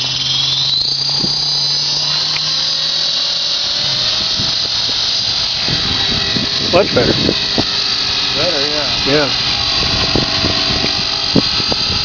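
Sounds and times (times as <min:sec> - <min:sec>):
low rising tone: 0:00.0 - 0:12.0
model helicopter whine: 0:00.0 - 0:12.0.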